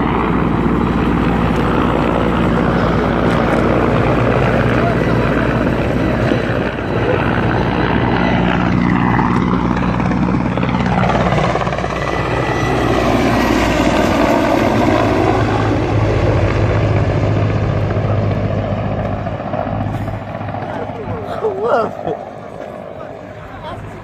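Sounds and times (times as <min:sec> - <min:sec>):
helicopter flying: 0:00.0 - 0:24.0.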